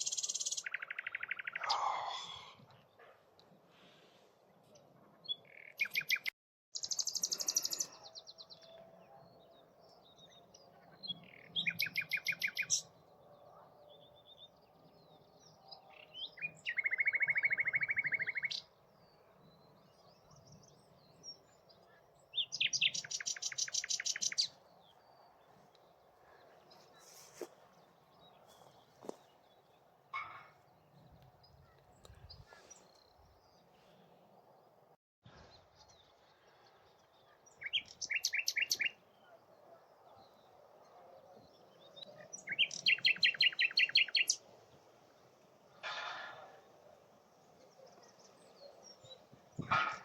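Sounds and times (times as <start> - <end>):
nightingale singing: 0.0 - 1.9, 5.3 - 8.2, 11.1 - 12.9, 16.0 - 18.7, 22.2 - 25.0, 37.5 - 39.4, 41.6 - 44.4
bird twittering: 16.4 - 18.6, 22.4 - 24.6, 37.6 - 39.0, 42.3 - 44.4.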